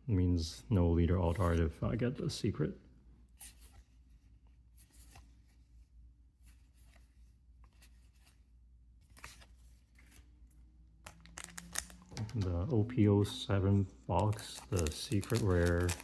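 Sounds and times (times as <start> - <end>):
trading cards being handled: 1.1 - 1.9, 3.3 - 16.0.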